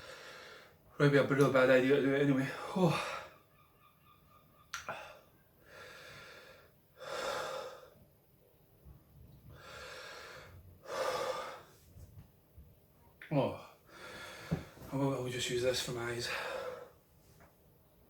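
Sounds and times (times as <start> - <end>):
man gasping breaths: 9.5 - 11.7, 13.9 - 14.9.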